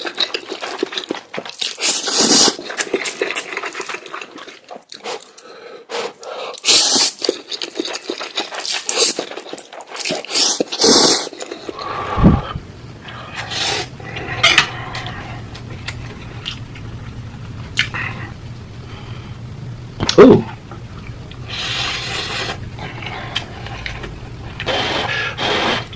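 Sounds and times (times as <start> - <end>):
loud slurping: 7.9 - 15.4, 24.6 - 25.9
steady low hum: 11.4 - 25.9.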